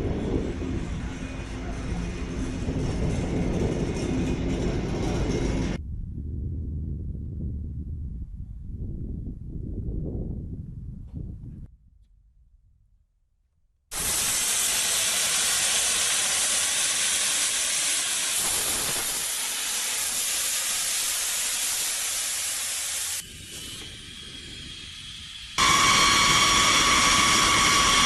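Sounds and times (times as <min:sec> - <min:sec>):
jet engines running: 0:13.9 - 0:28.0.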